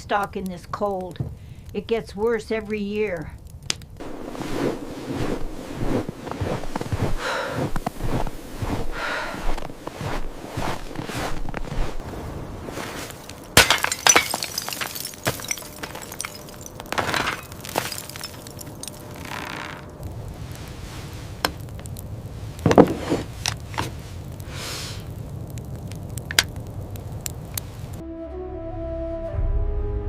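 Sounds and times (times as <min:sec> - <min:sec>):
low rumble: 0:03.9 - 0:12.7
sharp cracks and clinks: 0:26.2 - 0:26.6.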